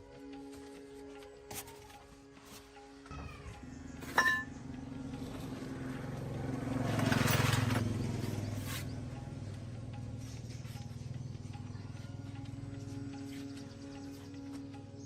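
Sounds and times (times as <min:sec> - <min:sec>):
engine running: 0:02.7 - 0:15.0
ringing metal clink: 0:04.0 - 0:04.6.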